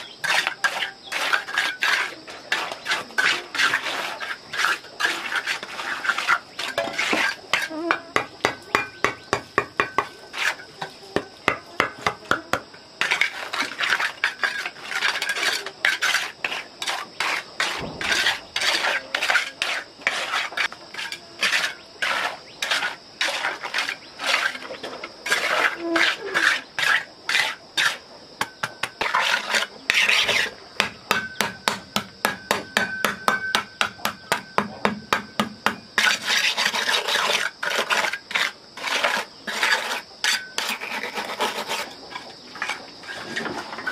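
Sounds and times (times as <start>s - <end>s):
rapid scraping strokes: 0.0s - 7.8s, 10.3s - 10.7s, 13.0s - 28.0s, 29.0s - 30.6s, 36.0s - 43.9s.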